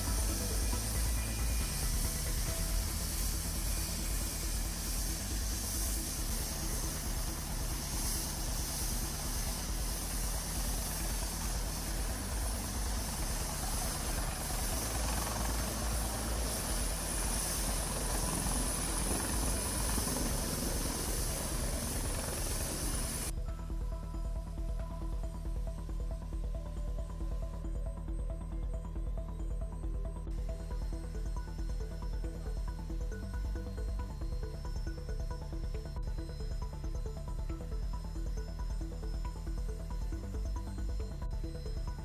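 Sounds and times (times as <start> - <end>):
helicopter rotor and turbine: 0.0 - 42.0.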